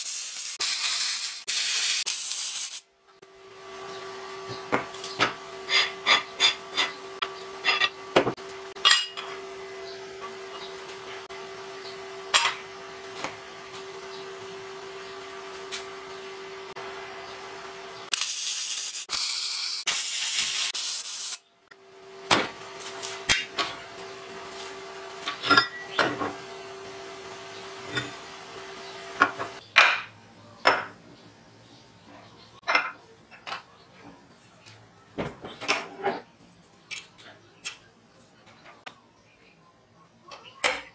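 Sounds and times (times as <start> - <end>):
electric arc welding hiss: 0.0 - 2.9, 18.1 - 21.4.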